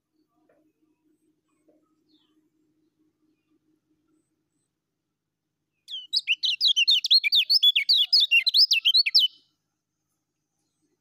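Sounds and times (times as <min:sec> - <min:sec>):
bird rapid high chirping: 0:05.9 - 0:09.4.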